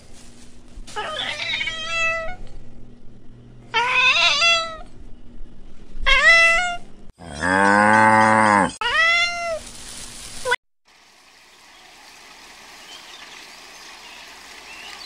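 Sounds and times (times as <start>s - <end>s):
cat meowing: 1.0s - 2.4s, 3.7s - 4.8s, 6.1s - 6.8s.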